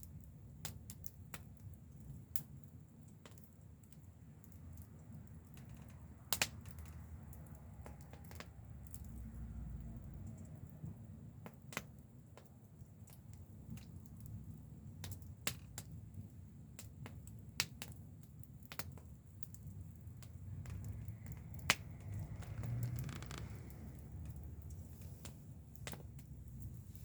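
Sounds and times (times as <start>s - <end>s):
campfire crackling and popping: 0.0s - 27.0s
low steady rumble: 19.5s - 27.0s.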